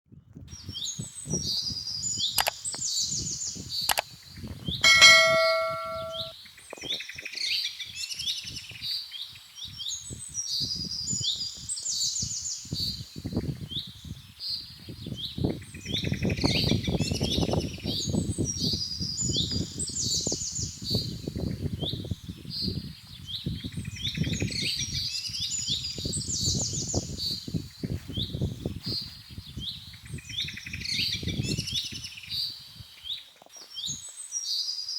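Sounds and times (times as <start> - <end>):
low handling noises: 4.8 - 6.3
metal object struck and ringing: 4.8 - 6.3.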